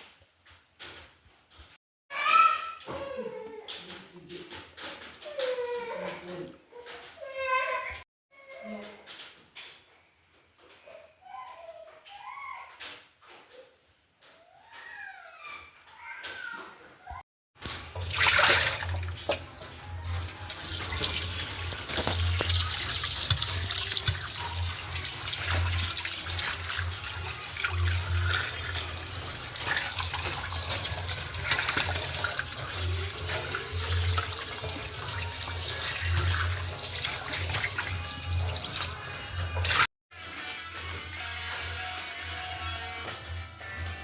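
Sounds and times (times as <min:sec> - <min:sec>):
tap water running into sink: 0:17.6 - 0:39.9.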